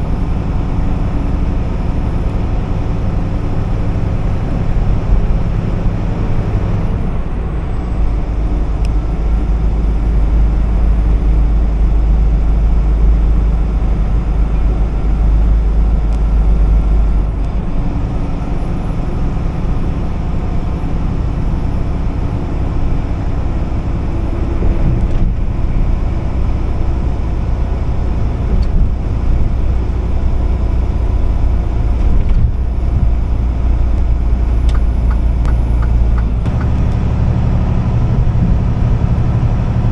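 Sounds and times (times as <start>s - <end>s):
truck engine hum: 0.0s - 39.9s
tyre and road noise: 22.3s - 39.9s.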